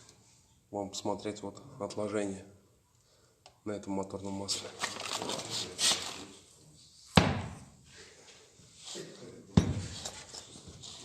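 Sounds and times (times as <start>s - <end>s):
rustling handling noise: 4.4s - 6.4s.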